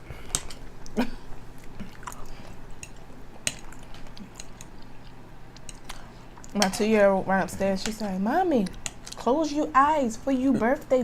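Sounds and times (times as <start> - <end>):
person chewing food: 0.2 - 6.5.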